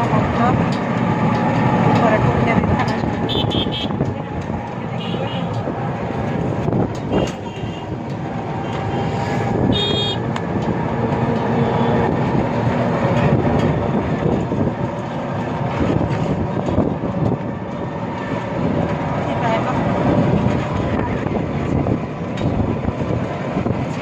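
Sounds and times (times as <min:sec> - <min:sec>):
auto-rickshaw engine running: 0:00.0 - 0:24.0
road noise: 0:00.0 - 0:24.0
high-pitched horn beep: 0:03.3 - 0:04.0, 0:09.7 - 0:10.2.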